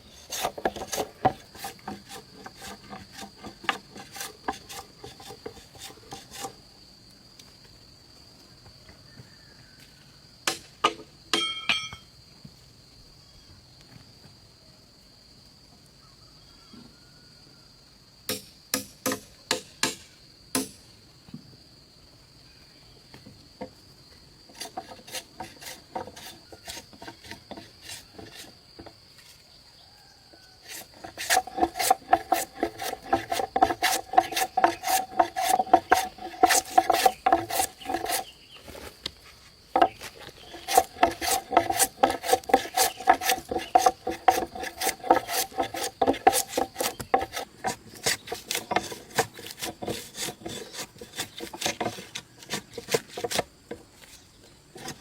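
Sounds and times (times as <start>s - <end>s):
hand tool rasping on wood: 0.0s - 6.6s, 24.5s - 28.6s, 30.6s - 38.4s, 39.8s - 53.5s, 54.8s - 55.0s.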